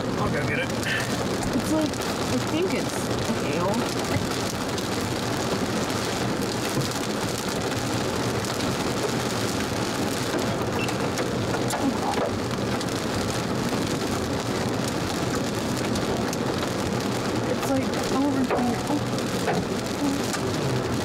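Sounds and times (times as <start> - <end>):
hailstones ticking: 0.0 - 21.0
heavy rain hissing: 0.0 - 21.0.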